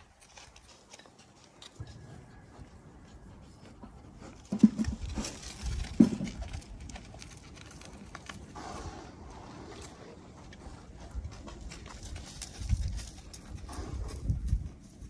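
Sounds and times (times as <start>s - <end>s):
hoof steps on dry dirt: 0.0s - 15.0s
goat bumps and snuffles: 3.8s - 7.8s.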